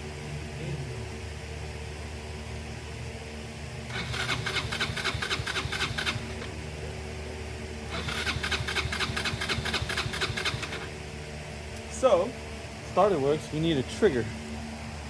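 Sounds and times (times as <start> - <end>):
scooter starter motor cranking: 3.9 - 6.6, 7.9 - 11.0.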